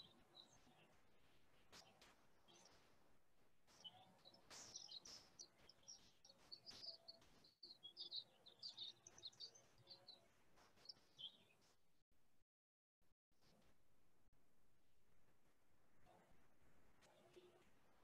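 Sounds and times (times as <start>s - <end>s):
faint birdsong chirps: 0.0s - 3.0s, 3.6s - 11.8s.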